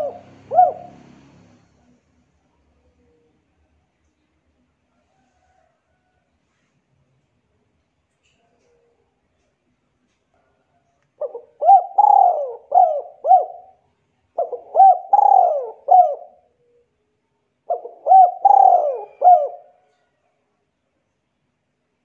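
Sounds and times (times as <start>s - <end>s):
bird calling: 0.0s - 1.2s, 11.2s - 13.8s, 14.4s - 16.8s, 17.7s - 19.7s.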